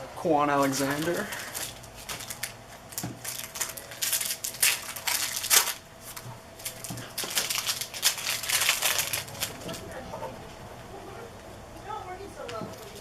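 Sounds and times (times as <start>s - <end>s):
cards and wrappers rustling: 0.5s - 10.0s, 12.5s - 13.0s.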